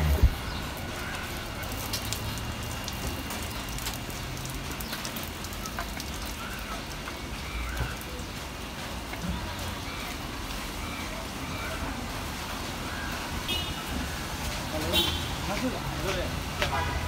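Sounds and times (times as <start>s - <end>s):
rain falling: 0.0s - 17.0s
water drips ticking: 0.3s - 12.4s.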